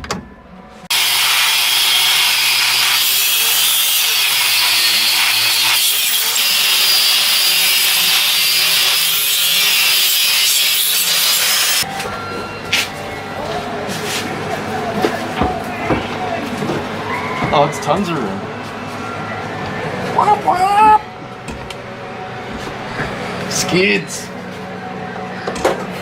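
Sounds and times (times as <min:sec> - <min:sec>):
power tool rasping: 0:00.9 - 0:11.8.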